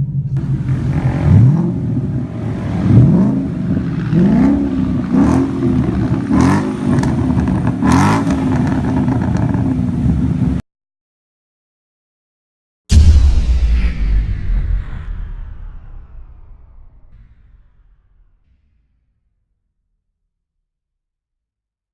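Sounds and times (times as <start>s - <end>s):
exhaust cracks: 0.2s - 10.6s
car engine revving: 0.3s - 10.6s.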